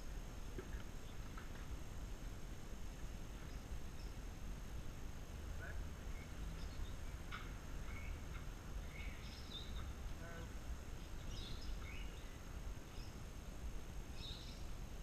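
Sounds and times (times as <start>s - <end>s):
low outdoor rumble: 0.0s - 15.0s
bird chirps: 6.1s - 10.0s, 11.0s - 13.2s, 14.2s - 14.7s.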